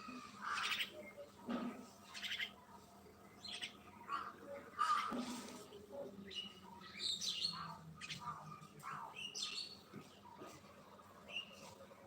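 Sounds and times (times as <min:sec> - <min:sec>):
mynas chirping and squawking: 0:00.0 - 0:01.0.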